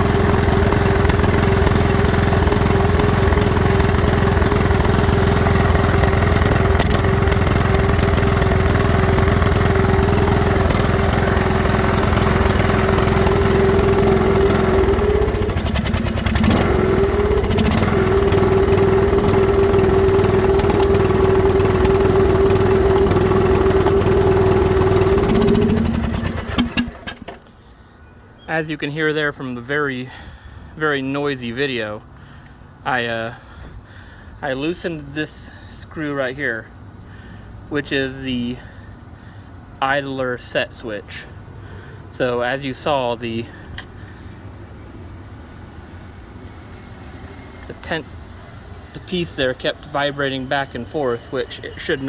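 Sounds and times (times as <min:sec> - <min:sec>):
riding mower engine surging: 0:00.0 - 0:27.7, 0:34.6 - 0:52.0.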